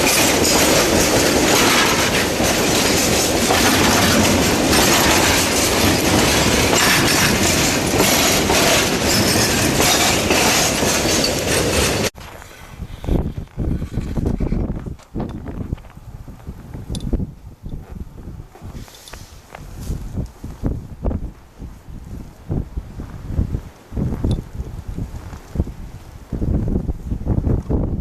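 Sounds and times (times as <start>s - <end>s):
train wheels rolling on track: 0.0s - 12.6s.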